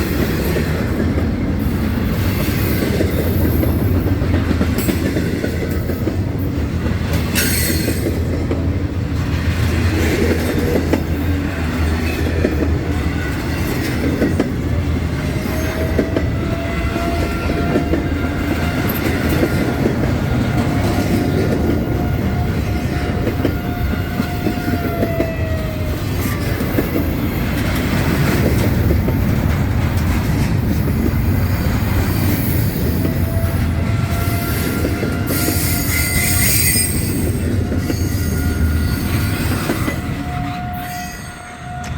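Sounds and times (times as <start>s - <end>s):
train cars rumbling on rails: 0.0s - 41.9s
high wheel squeal: 32.1s - 41.9s.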